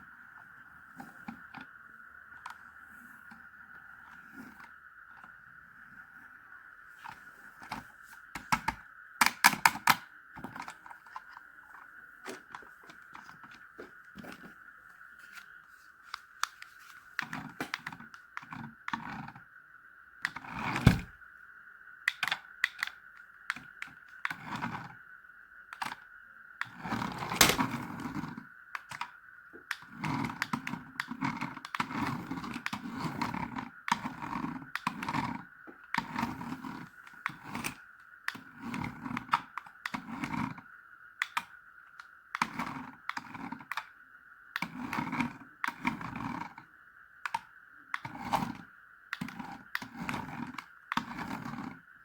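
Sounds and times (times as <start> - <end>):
toy truck clicks and knocks: 8.4 - 11.2, 28.8 - 35.3, 41.2 - 43.9.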